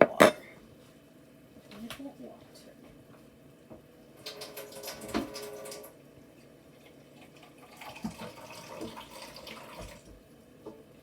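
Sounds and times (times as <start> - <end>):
tap water running and splashing: 4.2 - 10.9.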